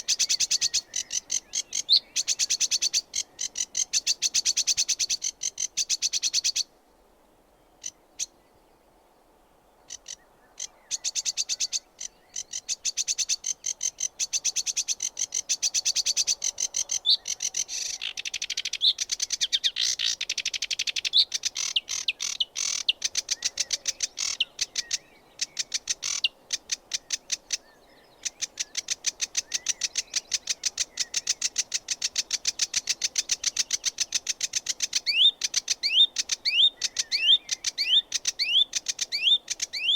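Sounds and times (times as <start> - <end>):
warbler singing: 0.0 - 6.6, 32.2 - 39.9.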